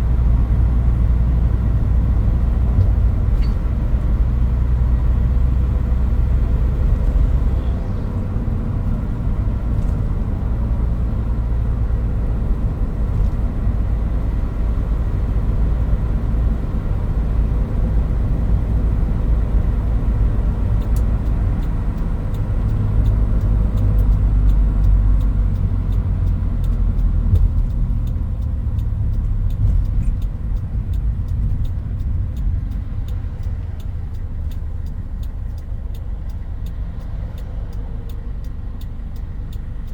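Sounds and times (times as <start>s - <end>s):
engine and road rumble: 0.0s - 39.9s
regular ticking: 20.8s - 39.9s.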